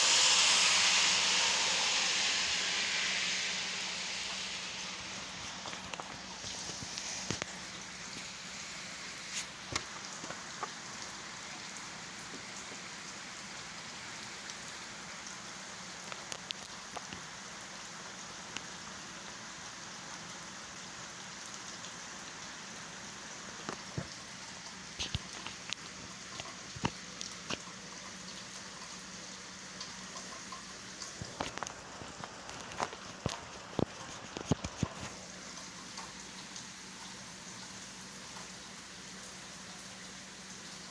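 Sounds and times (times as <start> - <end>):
steady rain: 0.0 - 40.9
drips tapping on a surface: 23.6 - 29.1.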